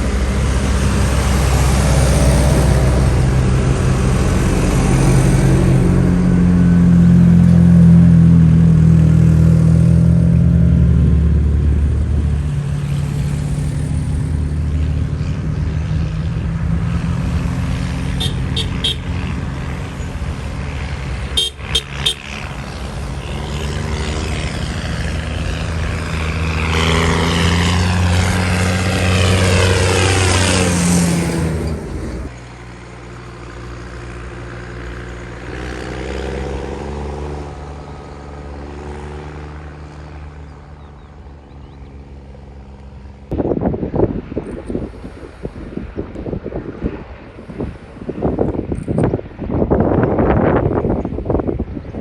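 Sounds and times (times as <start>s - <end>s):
tractor engines running: 0.0s - 43.4s
tractor passing close: 0.0s - 43.4s
horn toots: 18.0s - 19.4s, 21.2s - 22.8s.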